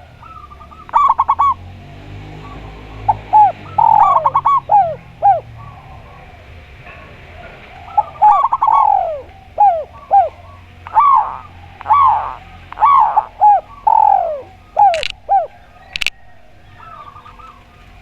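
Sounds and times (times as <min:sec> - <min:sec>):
clipped bird notes: 0:00.0 - 0:01.6, 0:08.0 - 0:17.9
doves cooing: 0:00.0 - 0:18.0.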